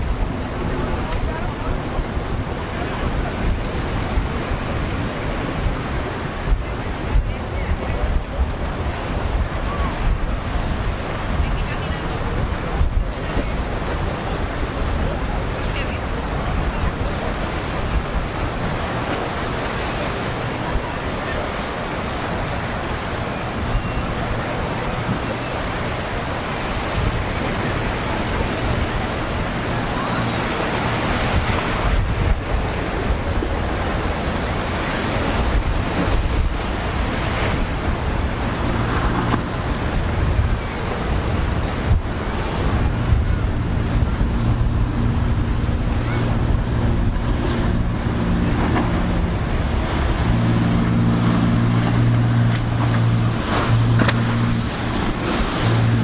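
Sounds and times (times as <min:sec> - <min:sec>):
boat engines droning: 0:00.0 - 0:56.0
breaking surf: 0:00.0 - 0:56.0
wind on microphone: 0:00.0 - 0:56.0.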